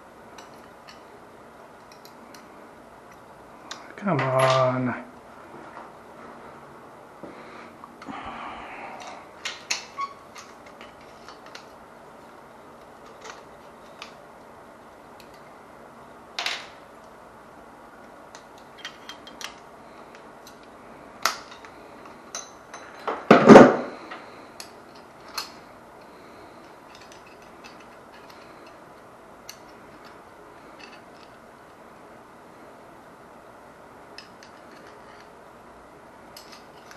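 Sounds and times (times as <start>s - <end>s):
hand tools clicking and clinking: 18.3s - 23.1s, 24.6s - 25.6s, 26.6s - 28.8s, 29.5s - 31.4s, 34.2s - 35.3s, 36.3s - 36.9s
metal parts clattering: 26.6s - 28.8s, 36.4s - 36.9s.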